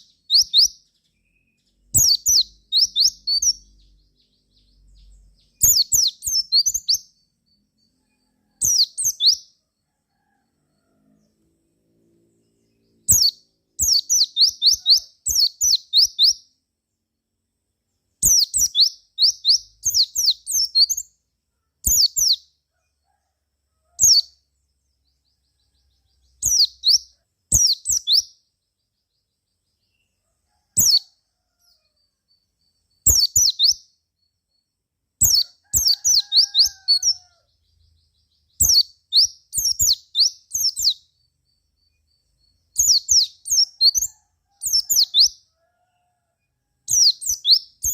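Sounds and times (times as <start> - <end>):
bird singing fast high chirps: 0.0 - 7.2, 8.6 - 9.5, 13.0 - 16.4, 18.2 - 21.1, 21.8 - 22.5, 26.3 - 28.3, 32.9 - 33.9, 35.2 - 37.2, 38.4 - 41.0, 41.6 - 44.1, 46.9 - 47.9.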